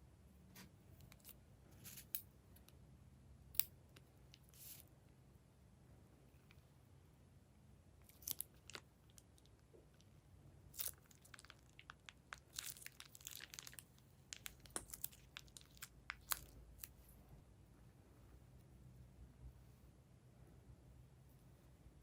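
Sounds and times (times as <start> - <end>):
slime clicking and crackling: 10.8 - 17.0.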